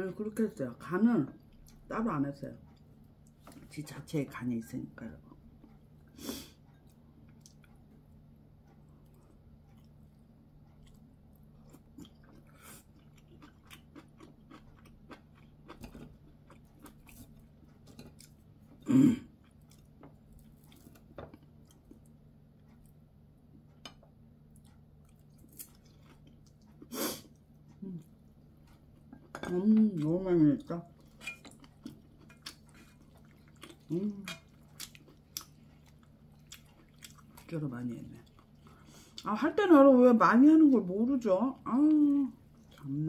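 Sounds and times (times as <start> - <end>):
faint low hum: 0.0 - 43.0
person chewing food: 5.3 - 37.6, 38.2 - 39.3, 42.3 - 43.0.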